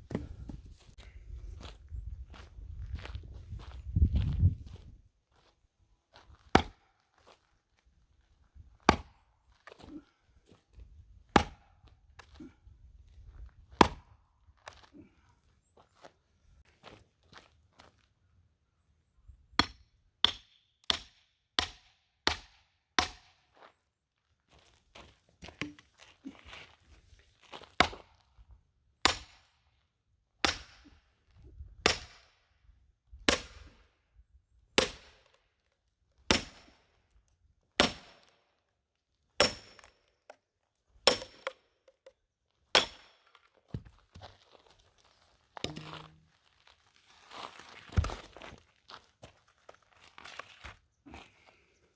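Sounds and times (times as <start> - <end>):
hammer striking axe head: 45.6 - 46.2.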